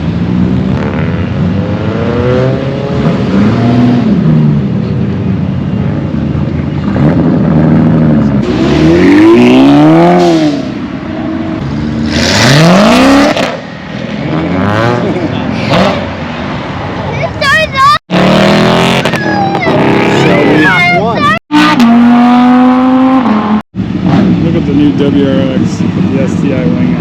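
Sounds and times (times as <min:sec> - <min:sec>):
car engine revving hard: 0:06.9 - 0:10.7, 0:11.8 - 0:13.6, 0:18.1 - 0:20.8, 0:21.5 - 0:24.6.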